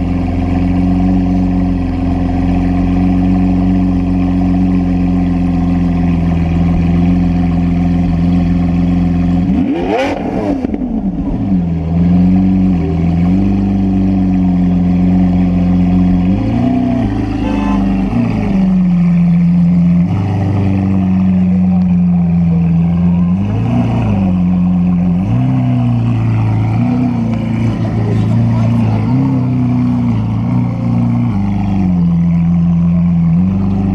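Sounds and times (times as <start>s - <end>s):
car engine idling: 0.0s - 33.9s
engine revving: 5.3s - 33.9s.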